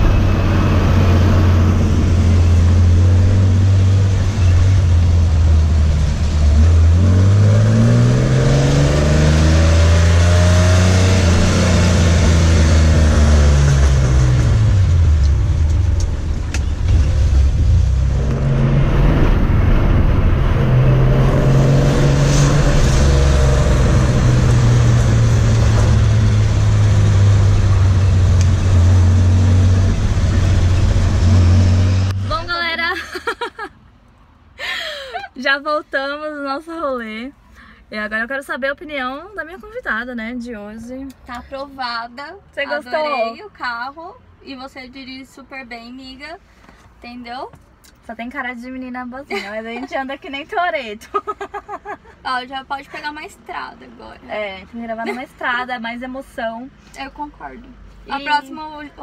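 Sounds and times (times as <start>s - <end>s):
car engine revving while driving: 0.0s - 32.5s.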